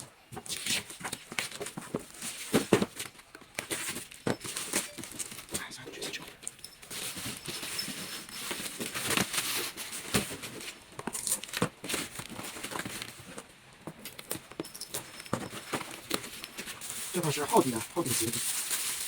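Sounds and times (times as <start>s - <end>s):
packaging crinkling and rustling: 0.0s - 19.0s.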